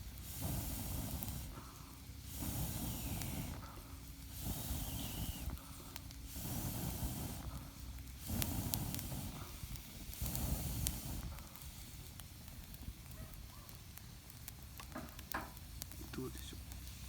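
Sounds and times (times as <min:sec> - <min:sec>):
person blowing on fire: 0:00.0 - 0:12.2
burning wood crackling: 0:00.0 - 0:17.0.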